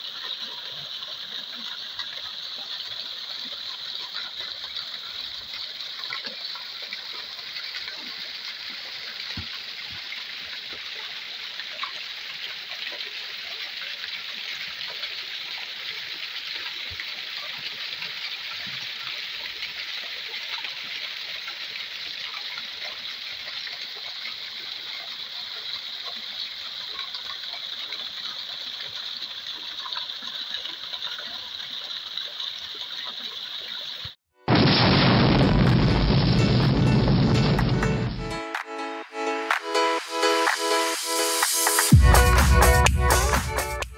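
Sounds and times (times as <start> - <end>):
waterfall rushing: 34.5 - 43.8.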